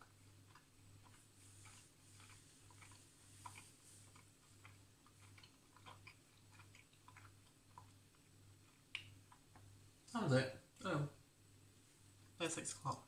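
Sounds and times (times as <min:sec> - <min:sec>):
chewing mouth clicks: 0:00.0 - 0:09.7
low steady hum: 0:00.0 - 0:13.0.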